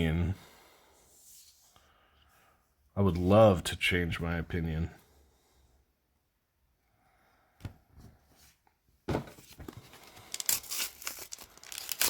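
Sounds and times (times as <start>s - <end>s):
foil wrapper crinkling and tearing: 9.9s - 12.0s.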